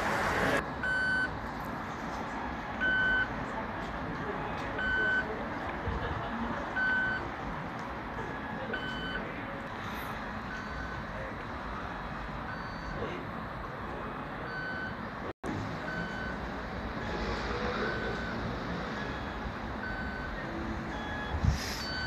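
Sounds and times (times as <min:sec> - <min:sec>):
electric train rumbling: 0:00.0 - 0:00.6.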